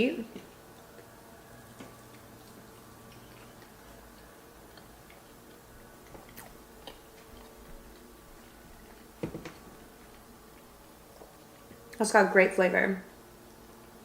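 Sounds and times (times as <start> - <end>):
low steady hum: 0.0 - 14.0
chewing clicks: 1.7 - 9.1.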